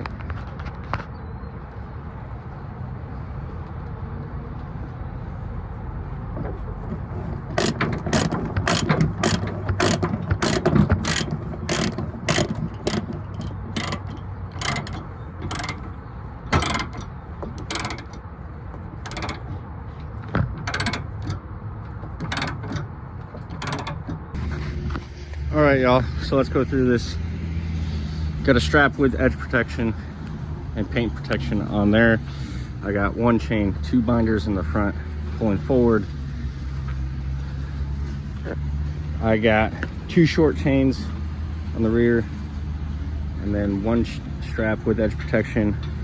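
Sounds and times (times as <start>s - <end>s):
ratchet clicks: 7.0s - 18.3s, 19.0s - 24.4s.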